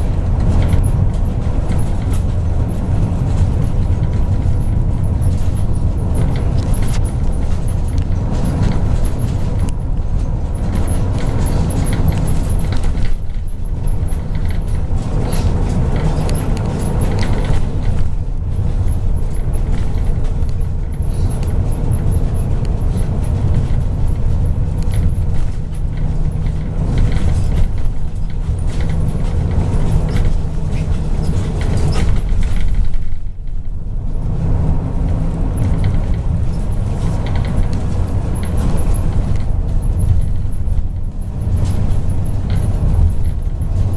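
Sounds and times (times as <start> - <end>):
bus engine and road rumble: 0.0 - 43.9.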